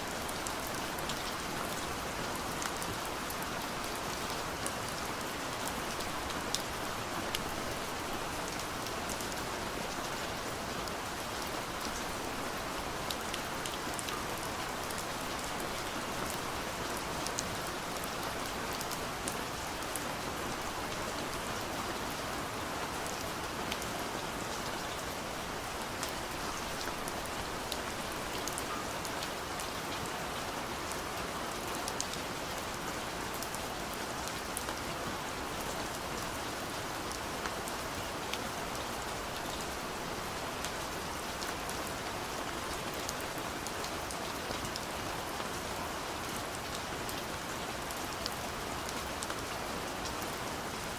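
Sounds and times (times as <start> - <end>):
rain on a window pane: 0.0 - 50.9.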